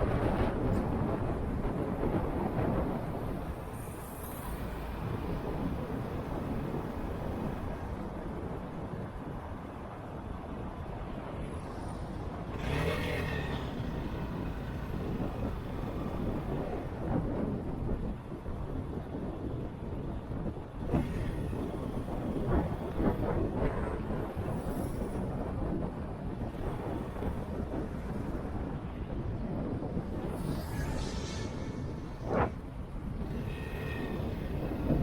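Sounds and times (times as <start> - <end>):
wind on microphone: 0.0 - 35.0
motorcycle engine: 12.5 - 16.4.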